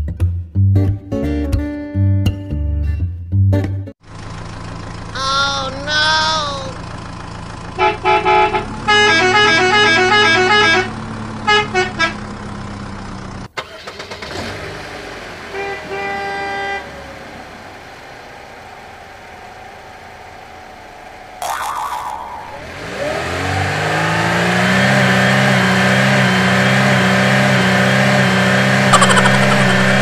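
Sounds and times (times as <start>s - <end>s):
low engine hum: 4.0s - 13.5s, 14.2s - 30.0s
vehicle horn honking: 7.8s - 12.2s, 15.5s - 17.0s.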